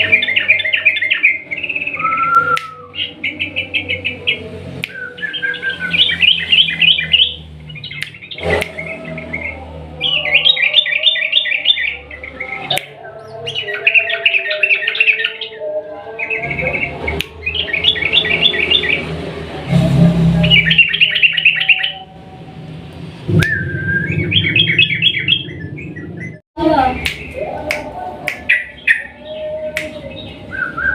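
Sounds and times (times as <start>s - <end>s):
bird singing fast trills: 0.0s - 19.1s, 20.4s - 22.1s, 23.4s - 27.4s
sharp bird clicks: 2.3s - 2.8s, 7.8s - 8.8s.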